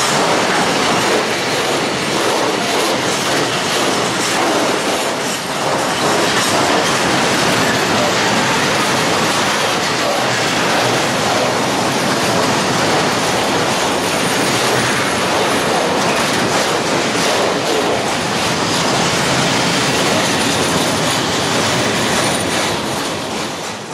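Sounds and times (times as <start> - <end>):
freight wagons rumbling on rails: 0.0 - 23.9.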